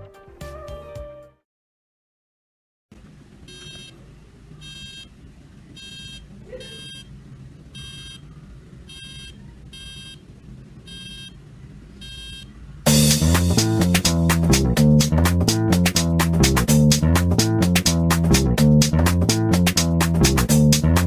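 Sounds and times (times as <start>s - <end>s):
electronic alarm beeping: 3.5s - 3.9s, 5.8s - 7.1s, 7.8s - 8.2s, 8.9s - 10.2s, 10.9s - 11.4s, 12.0s - 12.5s.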